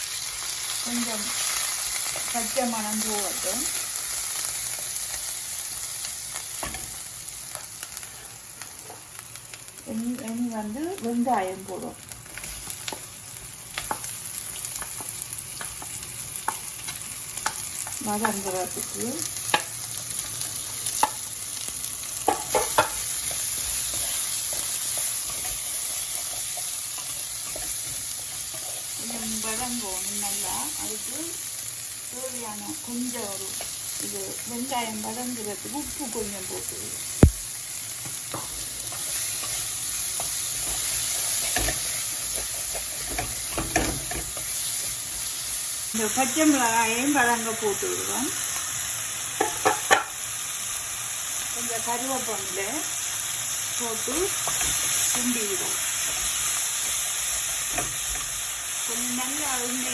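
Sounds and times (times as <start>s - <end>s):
hot oil sizzling in a pan: 0.0s - 59.9s
spoon stirring and tapping pan: 13.7s - 21.3s, 22.1s - 29.0s, 38.0s - 45.0s, 49.4s - 50.1s
sharp pops and clicks: 37.2s - 37.5s.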